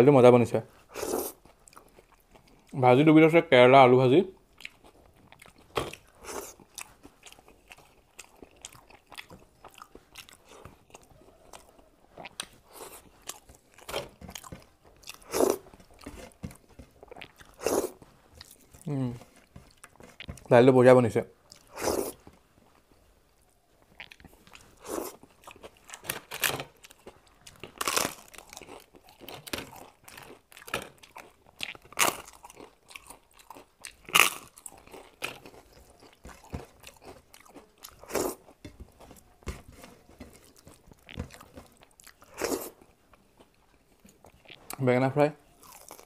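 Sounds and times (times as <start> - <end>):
person chewing crunchy food: 0.8 - 2.8, 4.4 - 20.5, 21.4 - 44.8, 45.4 - 46.0.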